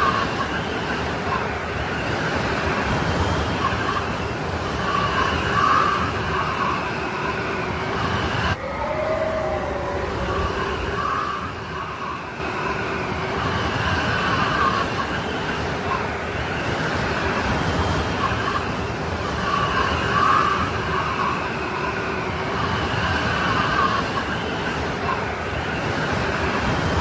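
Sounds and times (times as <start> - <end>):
snowstorm wind howling: 3.6 - 17.4.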